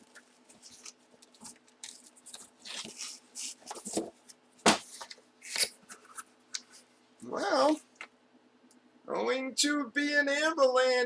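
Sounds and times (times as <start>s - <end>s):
packaging crinkling and tearing: 0.0s - 4.0s.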